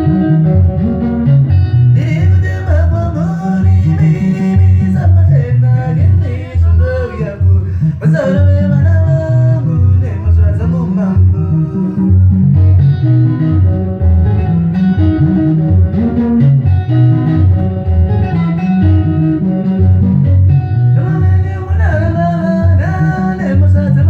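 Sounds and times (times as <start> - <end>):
heavy bass guitar line: 0.0 - 24.0
plucked electric guitar lines: 0.0 - 24.0
person singing: 1.8 - 13.4, 21.0 - 24.0.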